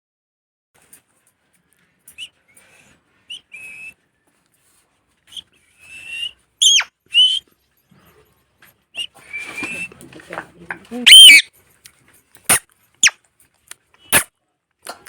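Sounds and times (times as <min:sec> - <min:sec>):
parrot whistling and calling: 0:05.3 - 0:07.4, 0:11.0 - 0:11.5.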